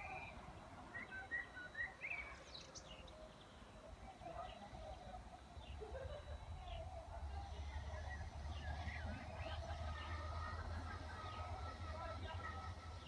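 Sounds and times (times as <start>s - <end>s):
songbirds chirping and whistling: 0.0s - 13.0s
low outdoor rumble: 4.3s - 13.0s.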